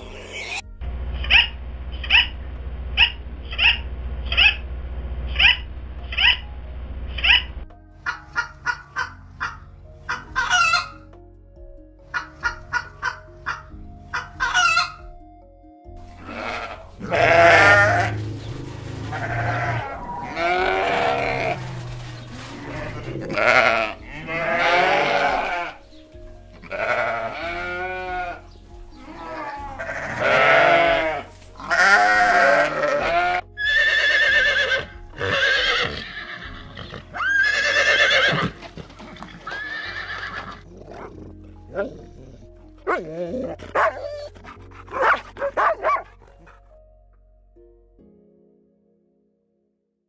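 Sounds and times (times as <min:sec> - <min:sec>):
horses whinnying: 0:16.2 - 0:25.8, 0:26.6 - 0:28.4, 0:29.0 - 0:46.1
sheep bleating: 0:16.2 - 0:25.8, 0:26.6 - 0:38.6.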